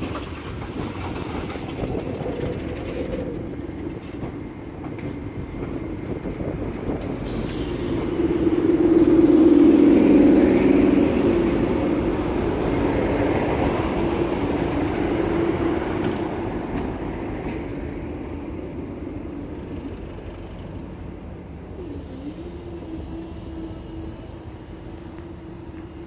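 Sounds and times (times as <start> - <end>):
diesel locomotive engine: 0.0 - 26.0
rail rumble: 0.0 - 26.0.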